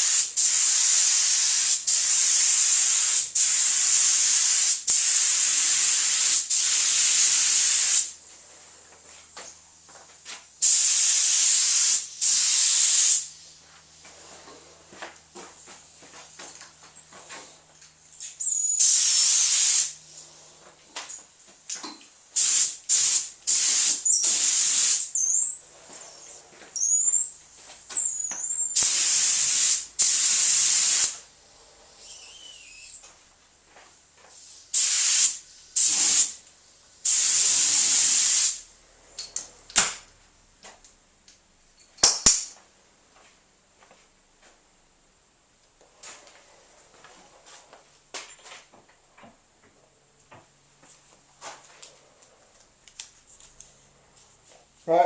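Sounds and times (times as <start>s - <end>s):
paint spray gun bursts: 0.0s - 8.1s, 10.6s - 13.3s, 18.5s - 20.0s, 22.4s - 25.6s, 28.0s - 31.2s, 34.7s - 36.4s, 37.0s - 38.6s.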